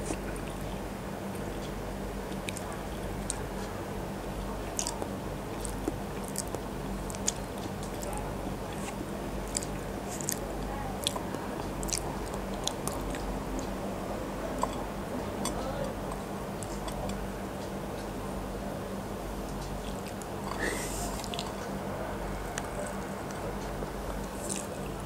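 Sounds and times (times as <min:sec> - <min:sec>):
steady low hum: 0:00.0 - 0:25.0
chewing with mouth clicks: 0:01.4 - 0:03.7, 0:04.6 - 0:13.8, 0:14.4 - 0:17.2, 0:19.6 - 0:21.7, 0:24.2 - 0:24.9.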